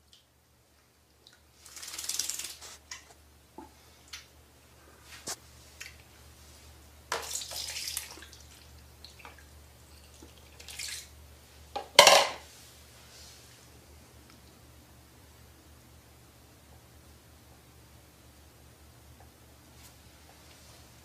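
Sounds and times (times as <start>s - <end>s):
water splashing in a basin: 1.2s - 2.6s, 7.1s - 9.5s, 10.1s - 11.2s
knocks against basin sides: 11.8s - 12.4s.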